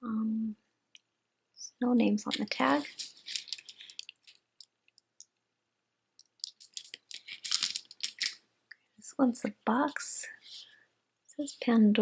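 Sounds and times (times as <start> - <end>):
crinkling and rustling: 2.0 - 5.4, 6.2 - 8.4
jewelry clicking: 2.3 - 5.4, 6.2 - 8.4.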